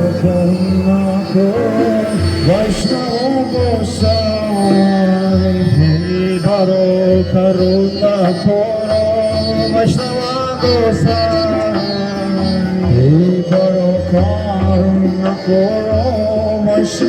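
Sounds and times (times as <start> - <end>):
wavering sung notes: 0.0 - 4.0
steady drone accompaniment: 0.0 - 4.5.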